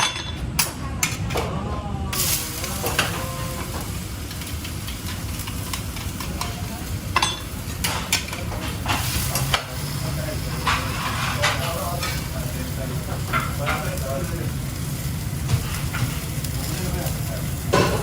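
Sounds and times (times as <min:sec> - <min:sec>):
food sizzling in a pan: 0:02.2 - 0:18.0.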